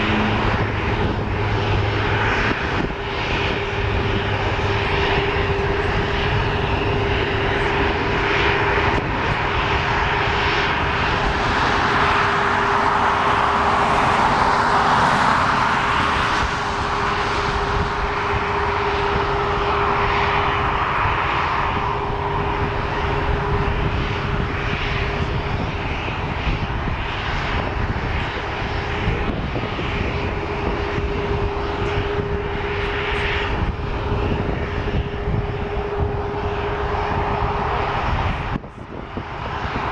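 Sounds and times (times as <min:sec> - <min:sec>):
steady hum: 0:00.0 - 0:12.7, 0:16.5 - 0:26.8
jet airliner engines roaring: 0:00.0 - 0:39.9.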